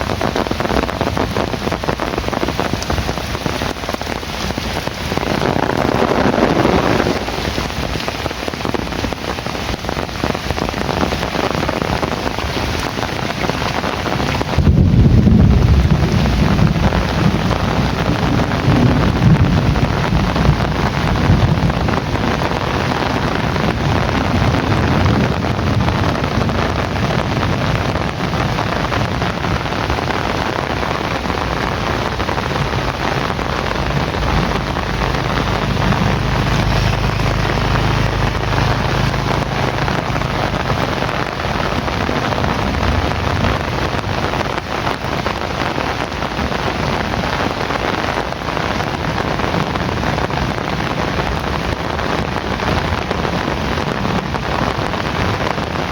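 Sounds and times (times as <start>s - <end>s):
low rumble: 0.0s - 9.1s, 14.6s - 47.2s
heavy rain falling: 0.0s - 55.9s.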